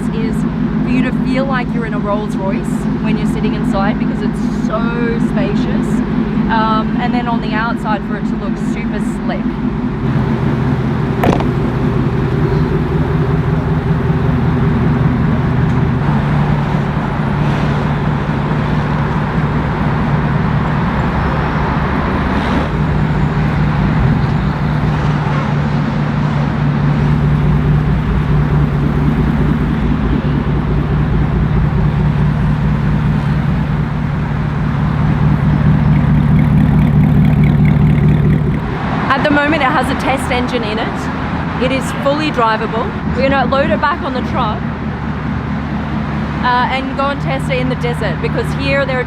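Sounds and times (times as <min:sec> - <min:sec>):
car engine droning at low revs: 0:00.0 - 0:49.0.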